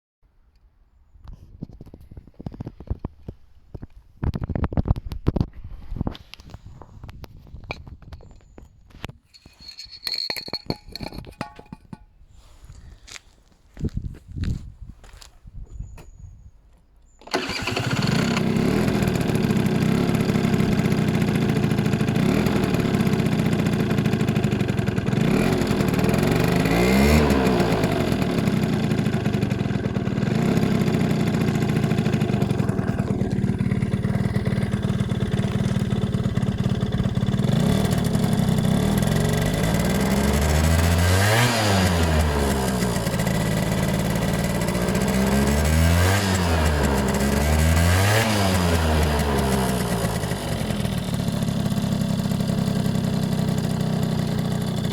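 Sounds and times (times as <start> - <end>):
scooter engine running: 17.2 - 54.9.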